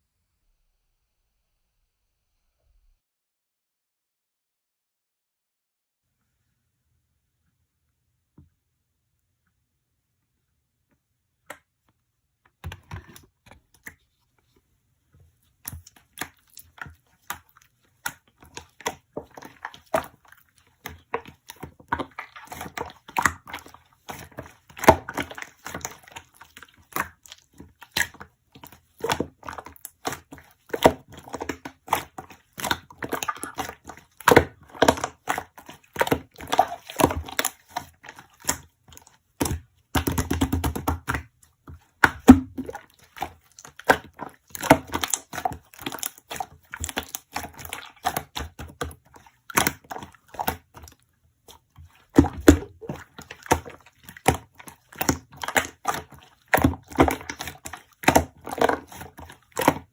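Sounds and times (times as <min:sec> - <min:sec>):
slime clicking and crackling: 0:15.7 - 0:41.3, 0:42.0 - 0:59.9.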